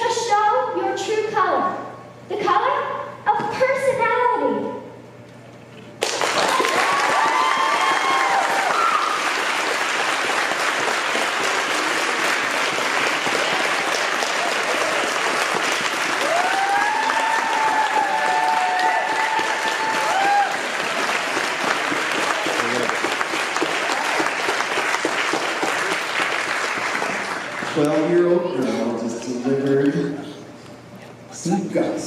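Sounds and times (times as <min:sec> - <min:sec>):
audience clapping: 0:06.0 - 0:28.2
audience cheering: 0:06.1 - 0:28.0.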